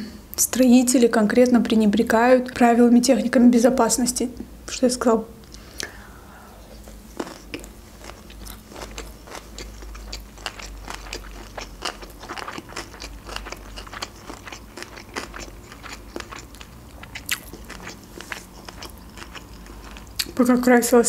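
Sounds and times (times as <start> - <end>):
person chewing with wet crunches: 6.7 - 20.5.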